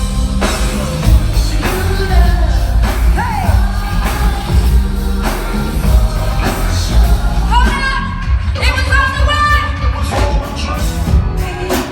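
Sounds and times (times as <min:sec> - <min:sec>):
person singing: 0:00.0 - 0:08.9
loud concert music with heavy bass: 0:00.0 - 0:11.9.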